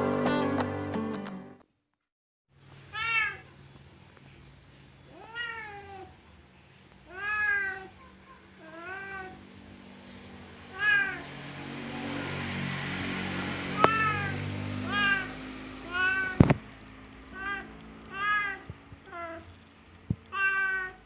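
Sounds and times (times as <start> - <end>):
cat meowing: 2.9 - 3.6, 5.1 - 6.2, 7.1 - 9.4, 10.7 - 11.4, 13.8 - 16.6, 17.3 - 19.5, 20.3 - 21.0.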